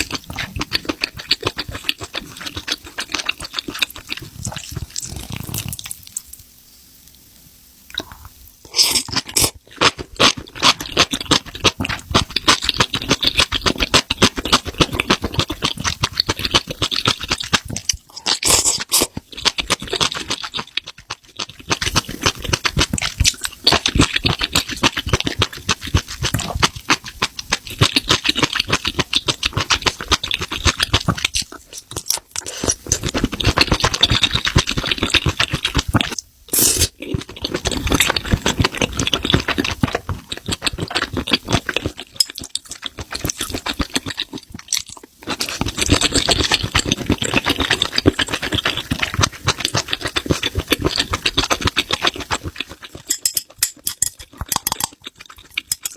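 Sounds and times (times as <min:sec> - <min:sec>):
close-miked chewing: 0:00.0 - 0:06.5, 0:07.9 - 0:55.9.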